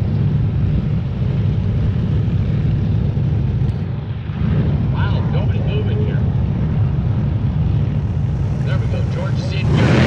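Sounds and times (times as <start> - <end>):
race car engines rumbling: 0.0 - 10.0.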